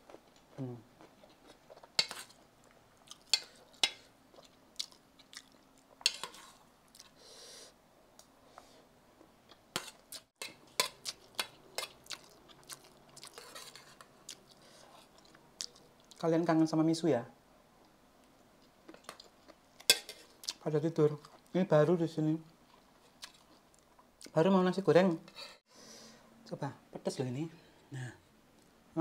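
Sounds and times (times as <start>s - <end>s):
person chewing: 0.0s - 7.2s, 9.4s - 16.2s, 18.6s - 20.6s, 22.6s - 24.3s.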